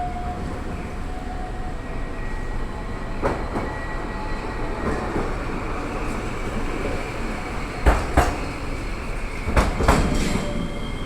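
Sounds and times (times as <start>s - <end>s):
tram running: 0.0s - 11.0s.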